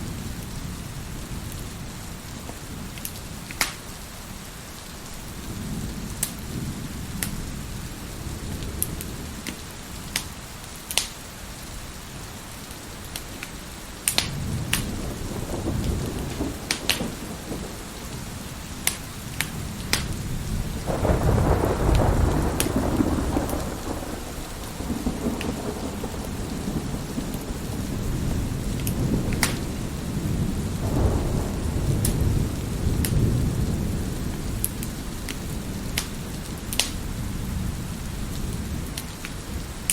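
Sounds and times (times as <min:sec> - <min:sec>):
steady rain: 0:00.0 - 0:39.9
wood fire crackling and popping: 0:02.4 - 0:04.0, 0:06.2 - 0:06.4, 0:09.4 - 0:11.2, 0:12.7 - 0:15.0, 0:15.8 - 0:20.2, 0:21.8 - 0:23.7, 0:28.8 - 0:29.8, 0:34.6 - 0:37.1, 0:38.3 - 0:39.9
thunder rumbling: 0:14.2 - 0:39.9.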